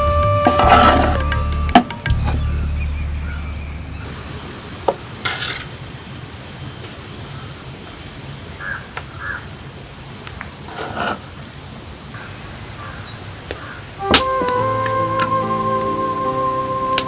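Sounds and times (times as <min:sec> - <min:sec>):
music with held tones: 0:00.0 - 0:04.3, 0:14.0 - 0:17.0
crows cawing: 0:08.6 - 0:09.5.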